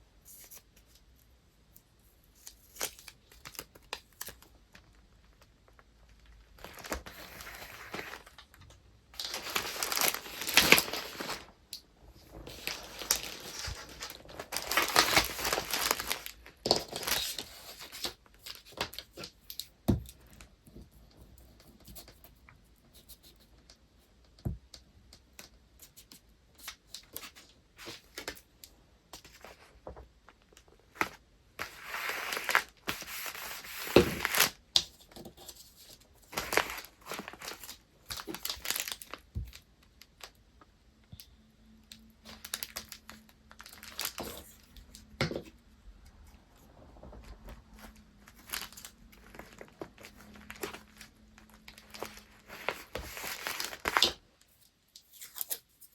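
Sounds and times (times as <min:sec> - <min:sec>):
paper wrapping rustling and tearing: 0:06.2 - 0:20.4, 0:30.9 - 0:39.6, 0:42.0 - 0:45.0, 0:47.0 - 0:55.9.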